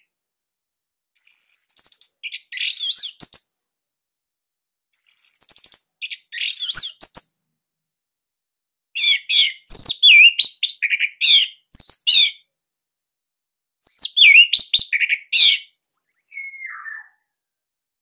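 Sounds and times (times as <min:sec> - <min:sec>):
thrush singing whistled notes: 0:01.2 - 0:03.5, 0:05.0 - 0:07.4, 0:09.0 - 0:12.4, 0:13.8 - 0:17.3.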